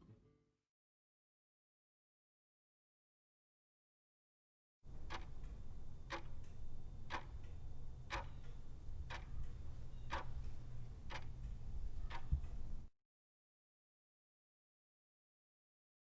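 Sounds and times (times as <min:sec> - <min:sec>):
clock ticking: 0:04.9 - 0:12.9
low steady hum: 0:04.9 - 0:12.9.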